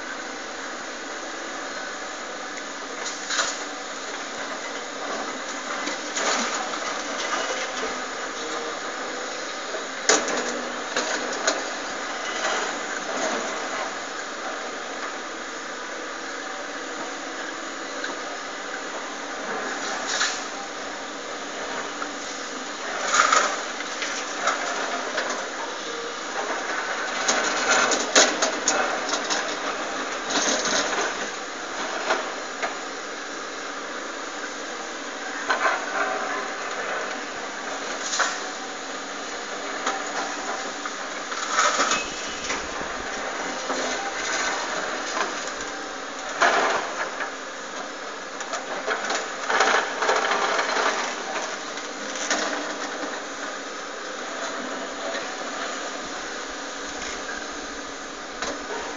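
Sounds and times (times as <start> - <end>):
excavator engine and hydraulics: 0.0 - 58.9
loud excavator clatter: 39.8 - 47.4.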